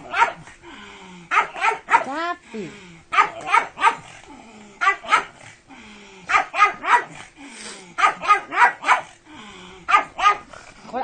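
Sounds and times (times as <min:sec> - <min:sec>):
dog barking: 0:00.0 - 0:00.5, 0:01.3 - 0:02.1, 0:03.1 - 0:04.1, 0:04.8 - 0:05.4, 0:06.3 - 0:07.2, 0:08.0 - 0:09.2, 0:09.9 - 0:10.5.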